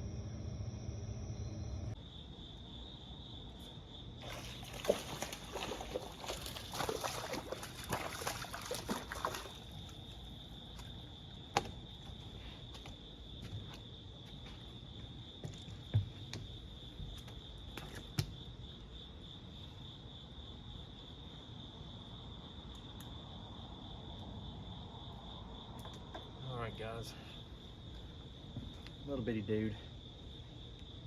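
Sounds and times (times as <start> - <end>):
high-pitched insect trill: 0.0 - 31.0
water splashing and trickling: 4.2 - 11.7.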